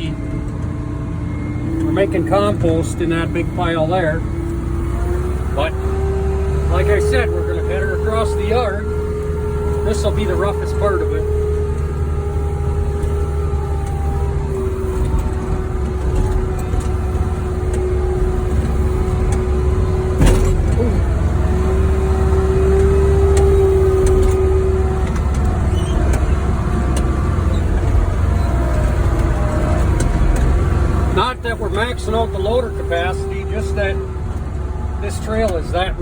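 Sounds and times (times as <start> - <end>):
diesel engine running: 0.0 - 36.0
held whine: 0.0 - 36.0
sharp clunk: 20.2 - 20.8.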